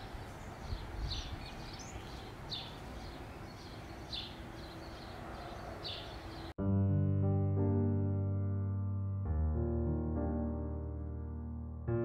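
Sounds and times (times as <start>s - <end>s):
small bird chirping: 0.0s - 6.5s.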